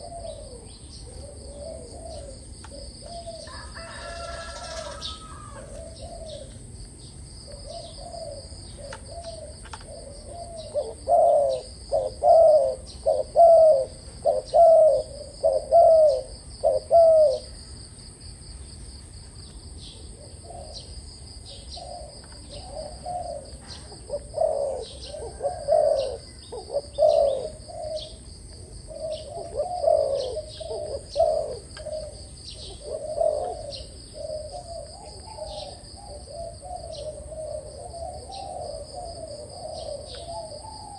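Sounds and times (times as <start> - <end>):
dove cooing: 0.0 - 17.9, 19.2 - 40.9.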